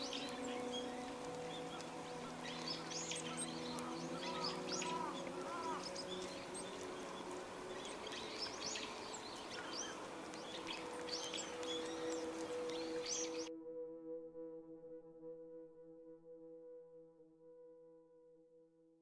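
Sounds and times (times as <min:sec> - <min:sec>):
small birds chirping: 0:00.0 - 0:13.5.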